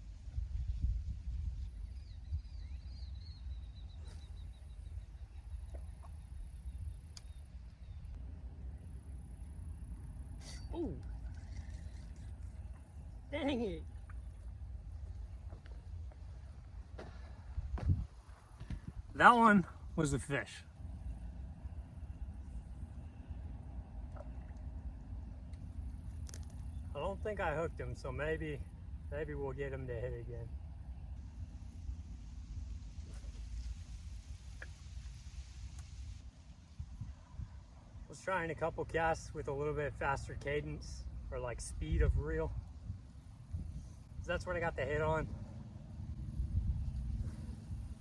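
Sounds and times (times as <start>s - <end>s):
low wind rumble on microphone: 0.0s - 39.1s, 39.9s - 48.0s
bird singing trills: 1.6s - 8.1s.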